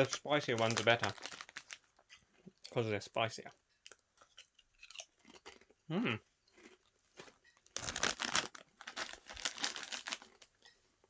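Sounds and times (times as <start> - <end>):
crisp packet crinkling: 0.0 - 2.0, 6.6 - 10.6.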